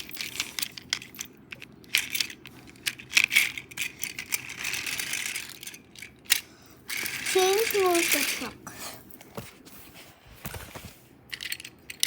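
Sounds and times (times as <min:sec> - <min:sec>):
toy trains clicking and rattling: 0:00.0 - 0:08.8, 0:11.3 - 0:12.0.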